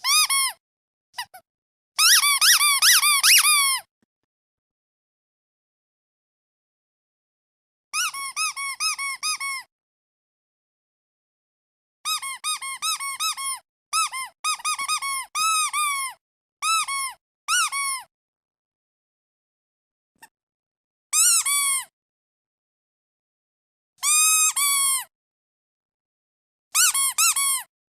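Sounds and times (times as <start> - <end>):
squeaky duck toy squeaking: 0.0 - 0.6, 1.2 - 1.4, 2.0 - 3.9, 8.0 - 9.7, 12.0 - 18.1, 21.1 - 21.9, 24.0 - 25.1, 26.8 - 27.7.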